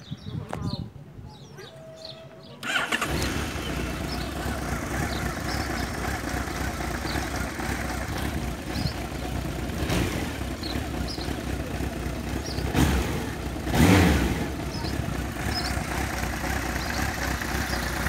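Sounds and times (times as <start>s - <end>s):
electric starter cranking: 2.6s - 4.0s
motorcycle engine idling: 2.6s - 18.0s.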